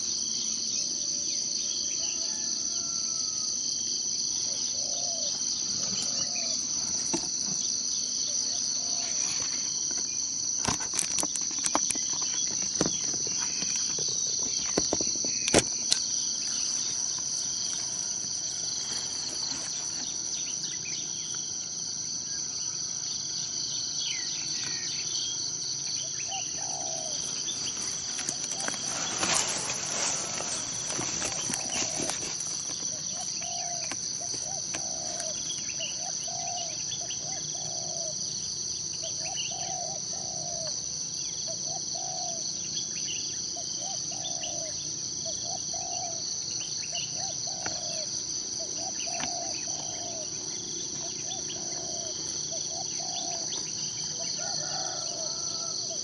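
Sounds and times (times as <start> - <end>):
insects chorus: 0.0 - 56.0
faint bird calls: 24.1 - 38.2.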